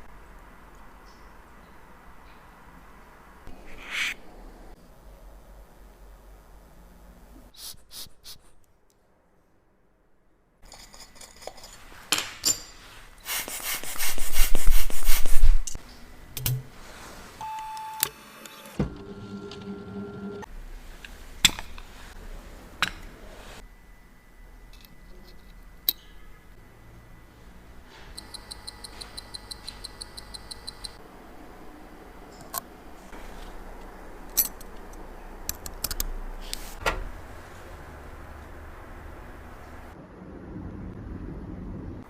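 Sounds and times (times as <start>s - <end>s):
metal clicks of watch parts: 34.3s - 36.1s.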